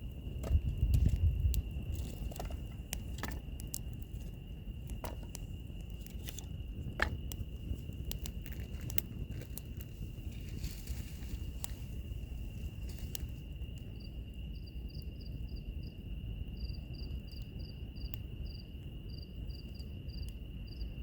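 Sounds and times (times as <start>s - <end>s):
wood fire crackling: 0.0s - 14.5s
high insect trill: 0.0s - 21.0s.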